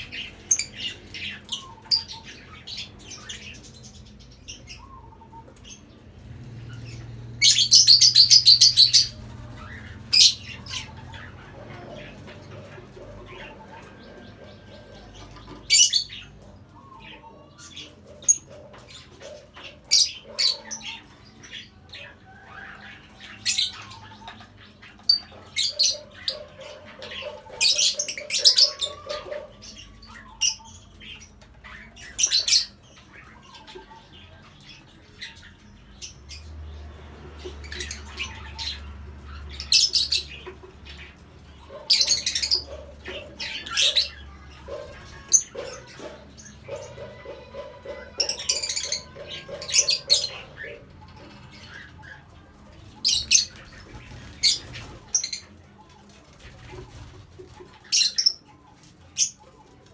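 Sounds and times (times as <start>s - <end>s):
lovebirds chirping and squawking: 0.0s - 59.9s.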